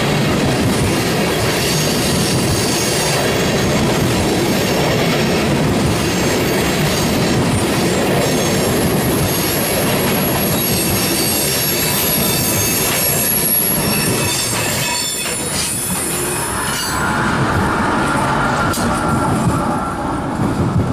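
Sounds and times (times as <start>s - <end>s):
high-pitched wheel squeal: 10.5s - 20.2s.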